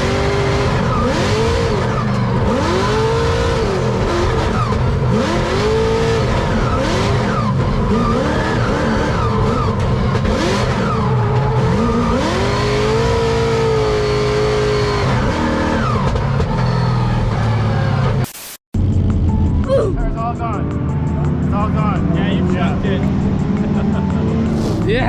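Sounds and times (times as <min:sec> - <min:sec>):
car engine revving high: 0:00.0 - 0:16.5.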